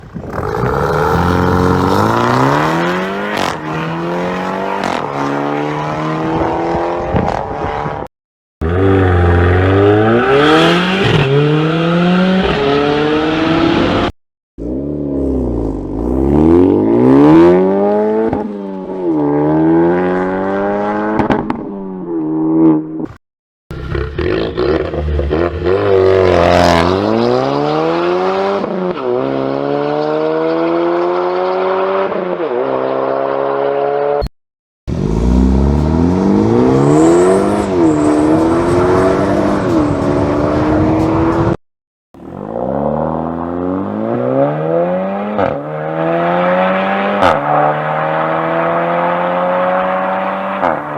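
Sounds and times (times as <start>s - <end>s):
car engines accelerating hard: 0.0s - 14.1s, 34.9s - 41.6s, 42.2s - 50.9s.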